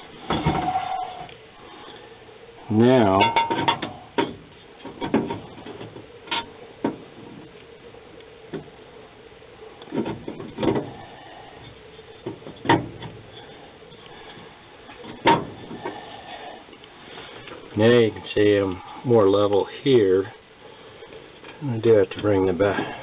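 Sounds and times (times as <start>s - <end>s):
tools clunking on sheet metal: 3.2s - 7.0s.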